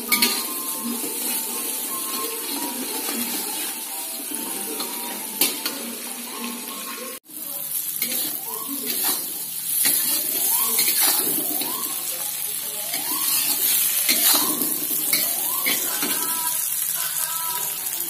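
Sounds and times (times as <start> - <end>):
food sizzling in a wok: 0.0 - 18.0
metal spatula scraping a pan: 8.0 - 11.7, 12.9 - 16.2.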